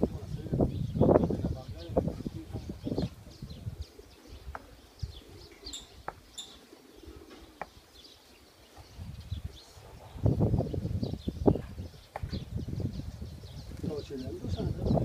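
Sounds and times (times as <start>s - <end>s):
low muffled sounds: 0.0s - 15.0s
small birds chirping: 0.0s - 15.0s.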